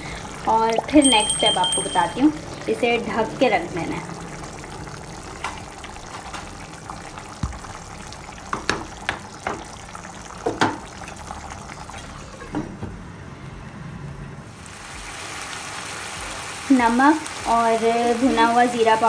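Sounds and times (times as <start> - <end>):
oil popping: 0.0 - 12.8
chicken sizzling in oil: 14.5 - 19.0.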